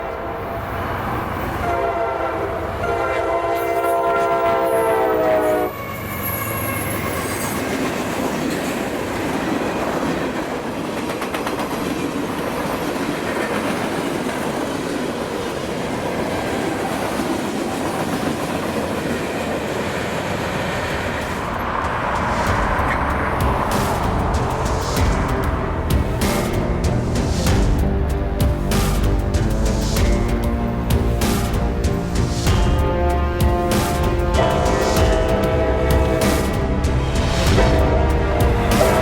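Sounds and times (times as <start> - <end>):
train wheels rumbling on rail: 0.0 - 39.0
train horn blast: 1.6 - 7.4, 32.5 - 39.0.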